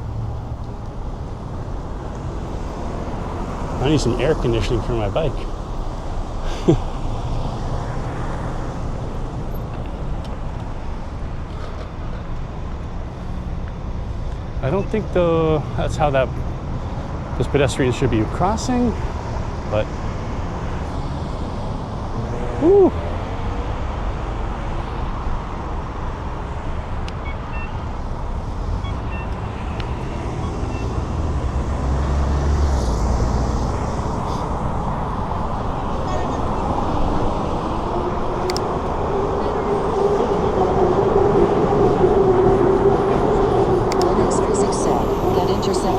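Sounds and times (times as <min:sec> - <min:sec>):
motor vehicle rumble: 0:00.0 - 0:45.9
nearby car traffic: 0:00.0 - 0:45.9
wind on microphone: 0:29.0 - 0:45.9.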